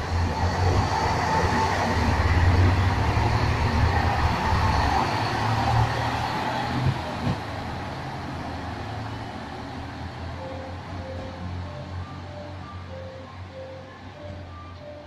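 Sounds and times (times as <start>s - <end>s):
train running past: 0.0s - 15.0s
wheels clacking on rails: 0.0s - 15.0s.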